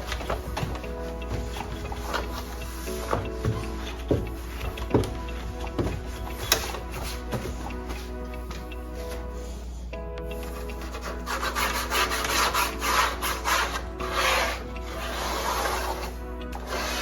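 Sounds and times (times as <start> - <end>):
background music with held notes: 0.0 - 17.0
scrubbing a surface: 10.5 - 17.0.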